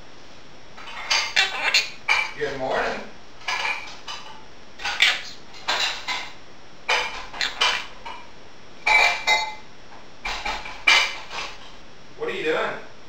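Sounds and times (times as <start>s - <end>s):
dishes and cutlery clinking in sink: 2.1s - 2.4s, 3.4s - 9.6s, 10.2s - 11.8s.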